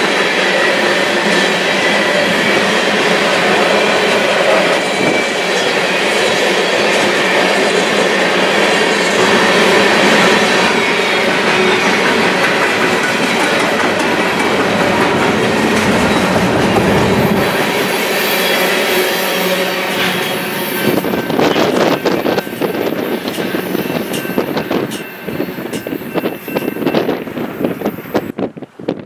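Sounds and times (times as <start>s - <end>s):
steel train wheels on rails: 0.0s - 29.0s.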